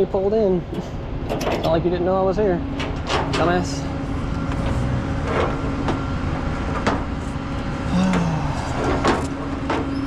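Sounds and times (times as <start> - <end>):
truck engine rumbling: 0.0 - 10.0
sharp clicks and knocks: 0.7 - 1.8.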